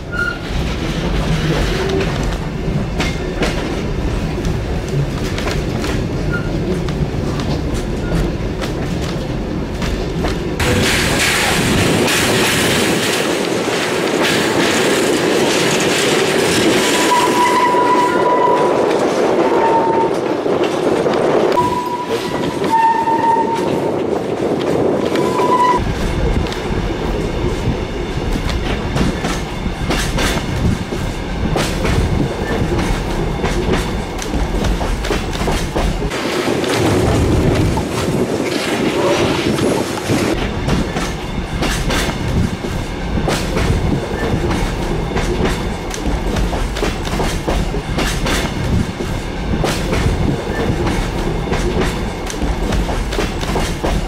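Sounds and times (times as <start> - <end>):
train carriages rolling and clattering: 0.0 - 54.0
high-pitched wheel squeals: 17.0 - 18.7, 21.6 - 23.8, 25.1 - 25.8.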